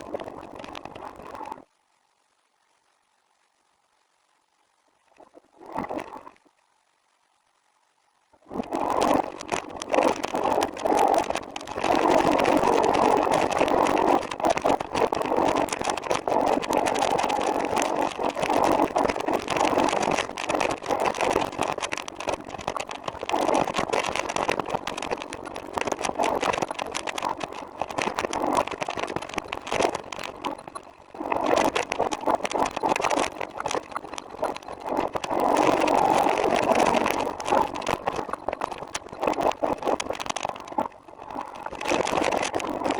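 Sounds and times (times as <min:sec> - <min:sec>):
trike rattling and rumbling: 0:08.8 - 0:42.9.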